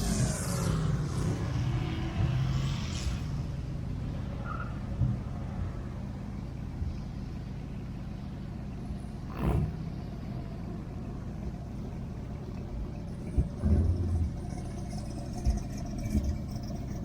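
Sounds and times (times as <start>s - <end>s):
whoosh: 0.0s - 3.6s
car engine rumbling: 0.0s - 17.0s.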